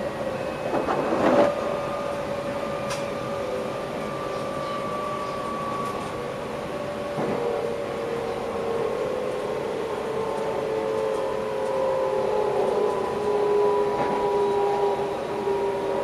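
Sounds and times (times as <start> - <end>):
electric train running rumble: 0.0 - 16.0.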